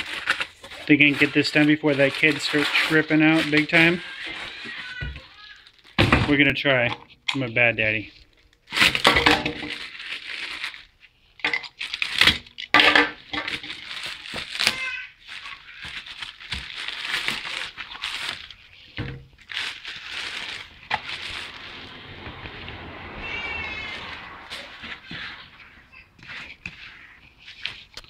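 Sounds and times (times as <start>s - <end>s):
cardboard tearing and crinkling: 0.0s - 6.0s, 9.7s - 10.9s, 13.5s - 21.6s.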